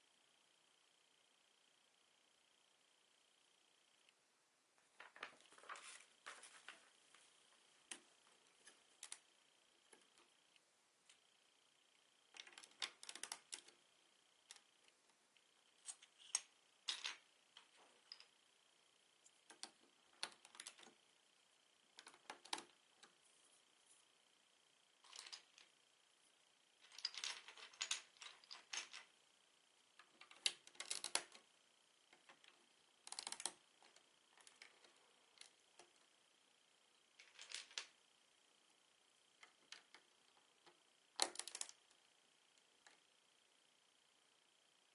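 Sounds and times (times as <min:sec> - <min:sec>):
plastic bricks clicking: 0:30.2 - 0:31.4, 0:33.1 - 0:33.6, 0:41.2 - 0:41.8.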